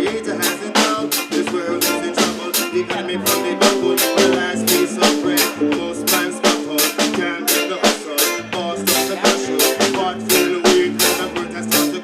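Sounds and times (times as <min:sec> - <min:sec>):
live reggae band playing: 0:00.0 - 0:12.0.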